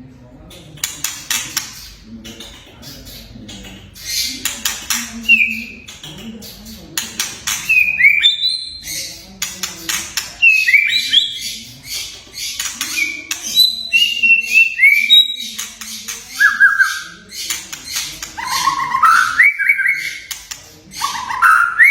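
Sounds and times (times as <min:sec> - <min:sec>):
bird crackling and clicking notes: 0:00.5 - 0:21.9
bird whistling song: 0:05.2 - 0:05.8, 0:07.6 - 0:09.1, 0:10.4 - 0:11.6, 0:12.6 - 0:15.7, 0:16.3 - 0:17.3, 0:18.4 - 0:20.4, 0:21.0 - 0:21.9.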